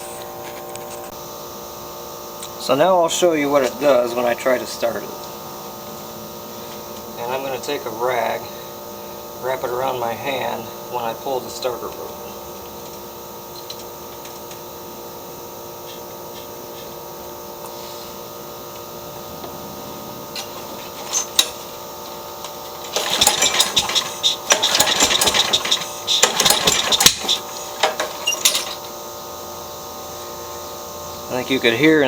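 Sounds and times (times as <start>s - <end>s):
lawn mower engine cranking and popping: 20.3s - 29.0s
engine backfiring: 22.8s - 28.8s
recoil rope pulls: 22.9s - 28.8s.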